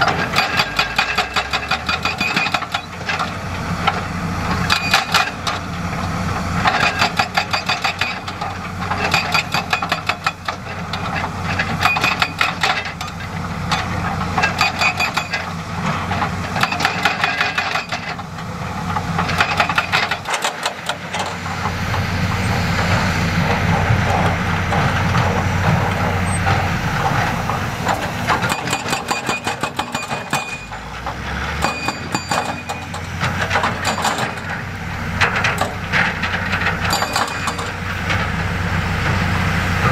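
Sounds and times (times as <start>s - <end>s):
diesel machinery engine: 0.0s - 39.9s
rock and metal clattering: 23.5s - 38.4s.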